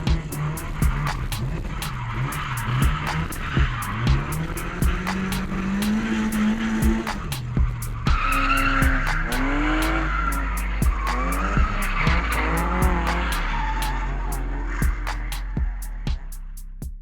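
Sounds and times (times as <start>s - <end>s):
car engine revving: 0.0s - 16.1s
music with steady beat: 0.0s - 17.0s
tyres squealing: 7.2s - 15.3s.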